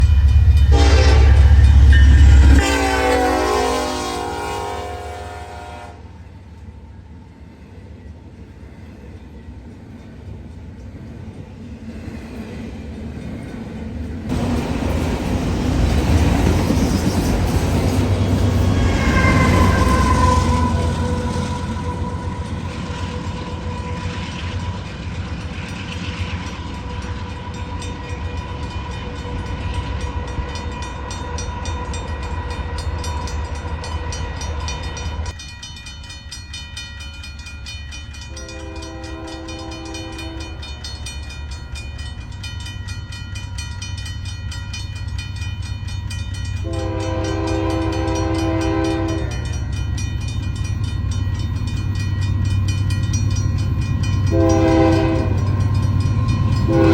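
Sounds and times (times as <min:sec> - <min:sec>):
diesel train rumbling: 0:00.0 - 0:56.9
locomotive air horn blasts: 0:00.7 - 0:06.2, 0:18.6 - 0:24.1, 0:38.3 - 0:40.5, 0:46.6 - 0:49.5, 0:54.3 - 0:55.6, 0:56.6 - 0:56.9.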